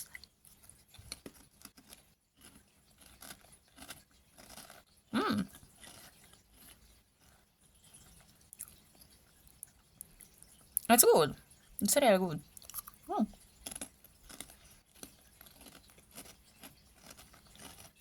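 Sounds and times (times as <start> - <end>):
chewing crunchy chips: 0.0 - 10.9, 12.4 - 18.0
short pitched vocal sound: 5.2 - 5.5.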